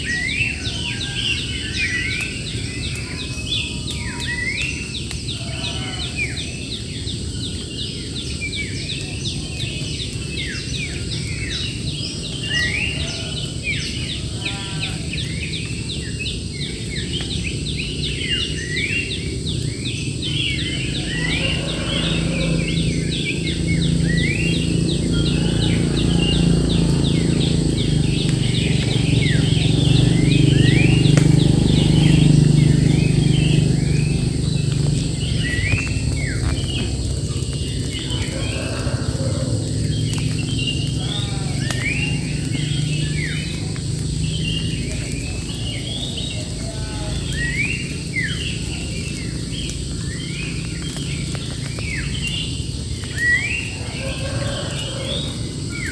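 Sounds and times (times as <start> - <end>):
birds chirping: 0.0 - 55.9
insect drone: 0.0 - 55.9
low rumble: 19.6 - 45.0.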